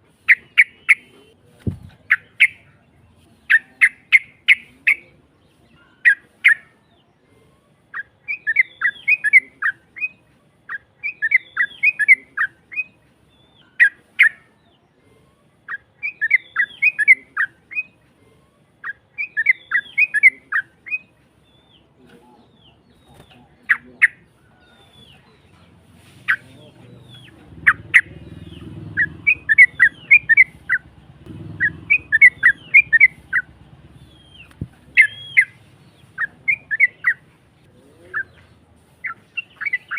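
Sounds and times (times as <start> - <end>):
bulbul chirping song: 0.0 - 39.9
low rumble: 27.4 - 35.0.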